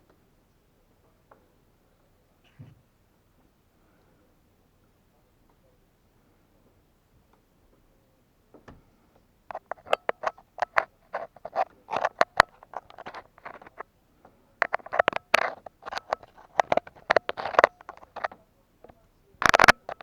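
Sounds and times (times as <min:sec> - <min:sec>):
close-up clicks: 0:09.5 - 0:13.8, 0:14.6 - 0:20.0
scrapes: 0:09.5 - 0:13.8, 0:14.6 - 0:18.3, 0:19.4 - 0:20.0.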